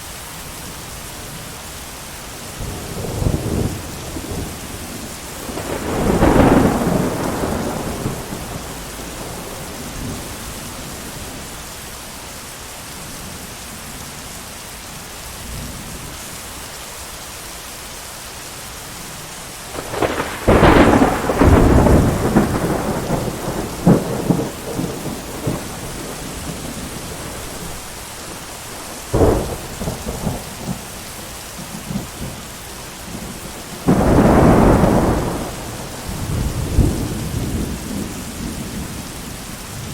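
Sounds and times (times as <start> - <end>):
heavy rain: 0.0 - 39.9
thunder cracks and rumbles: 2.6 - 11.4, 19.7 - 30.9, 33.1 - 39.9.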